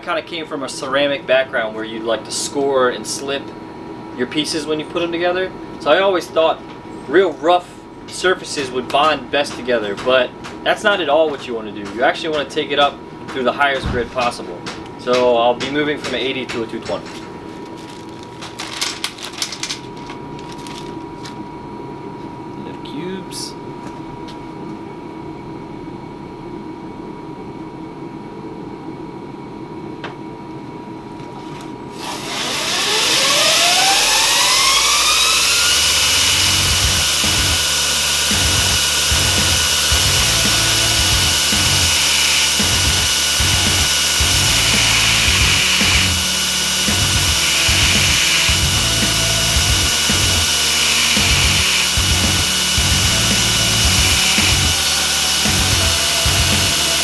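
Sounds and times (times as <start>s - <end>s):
belt grinder motor whine: 32.0s - 57.0s
steel grinding on belt: 32.5s - 57.0s
background music with beat: 36.1s - 37.7s, 38.3s - 57.0s.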